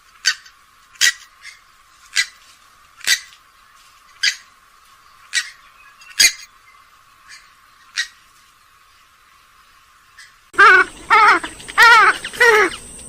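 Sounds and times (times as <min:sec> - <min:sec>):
bird giving sharp calls: 0:00.2 - 0:02.4, 0:03.0 - 0:03.3, 0:05.2 - 0:06.5, 0:10.2 - 0:12.9.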